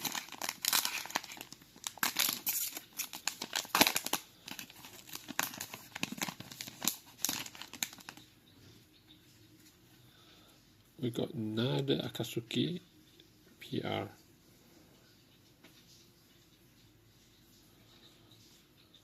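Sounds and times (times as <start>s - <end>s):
wrapper being torn and crinkled: 0.0s - 8.2s.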